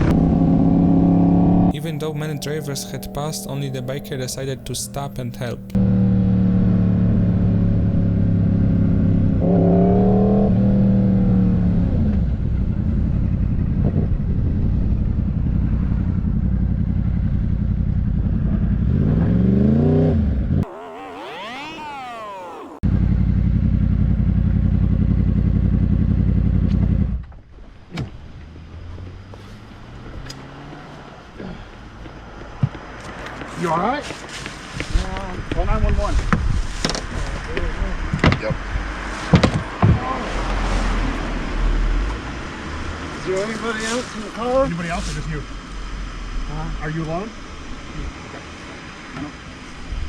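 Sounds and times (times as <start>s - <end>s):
motorcycle engine revving: 0.0s - 27.3s, 28.4s - 33.4s
wavering high whine: 1.7s - 5.8s, 20.6s - 22.8s.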